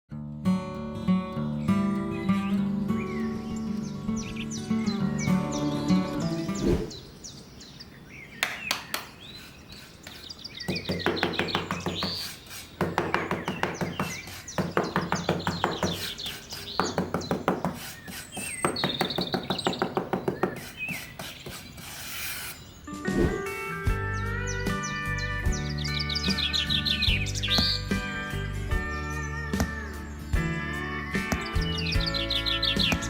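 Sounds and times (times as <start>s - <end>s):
birds chirping: 1.0s - 33.0s
rapid tapping: 8.4s - 21.7s.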